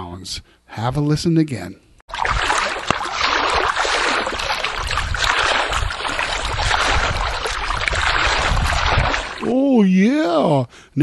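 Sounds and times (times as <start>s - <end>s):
water sloshing as person wades: 2.1s - 9.6s.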